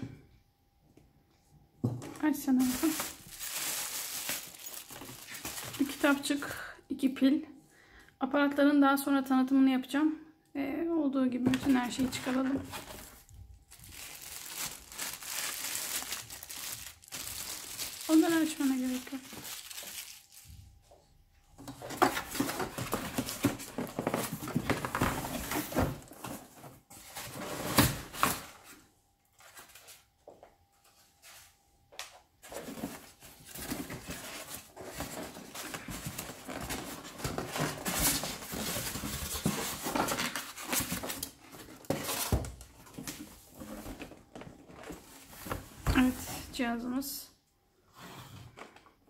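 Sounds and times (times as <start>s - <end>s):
handling and scraping noises: 1.8s - 6.4s, 11.4s - 46.7s
plastic packaging crinkling: 2.4s - 6.5s, 11.6s - 20.8s, 32.4s - 44.0s.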